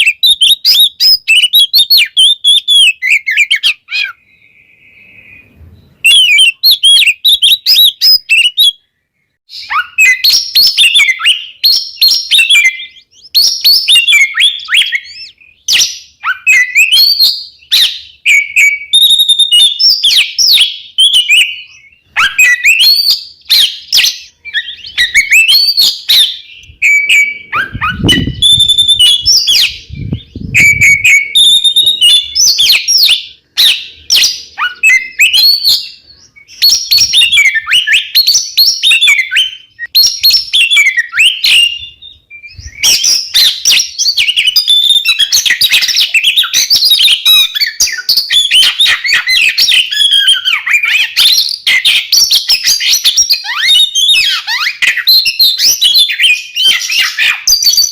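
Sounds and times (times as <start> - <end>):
birds singing chirps and trills: 0.0 - 57.9.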